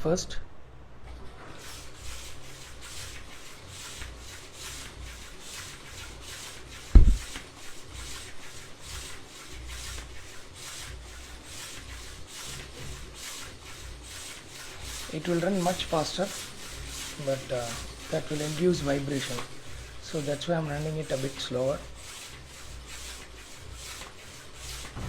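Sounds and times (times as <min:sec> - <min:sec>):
low thump: 0:06.9 - 0:07.3.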